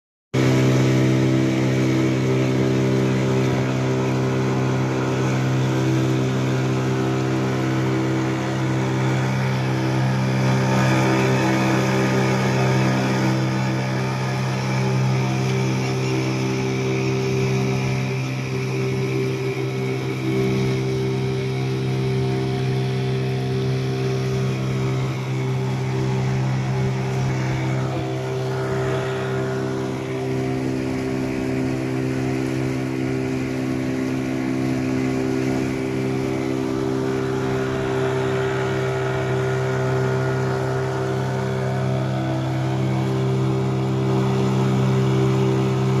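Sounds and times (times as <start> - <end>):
boat engine droning: 0.4 - 46.0.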